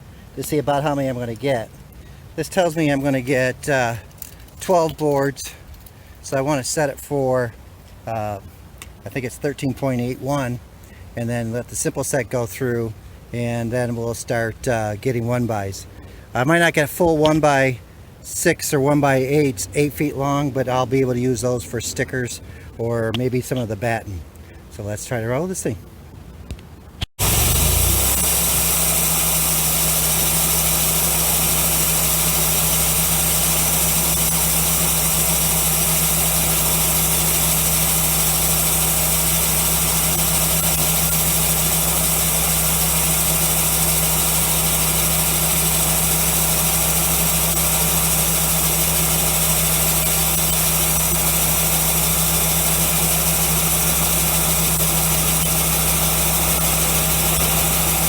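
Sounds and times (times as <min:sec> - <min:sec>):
bandsaw sawmill droning: 0:27.2 - 0:58.0.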